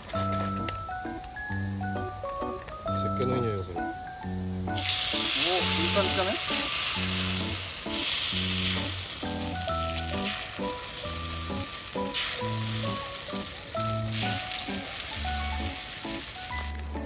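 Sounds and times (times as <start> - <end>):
background music: 0.0 - 17.0
food sizzling as it fries: 4.7 - 17.0.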